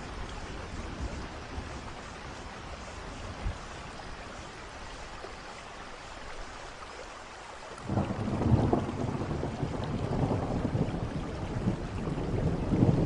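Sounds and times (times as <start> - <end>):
rain hissing: 0.0 - 13.0
thunder rumbling: 7.8 - 13.0.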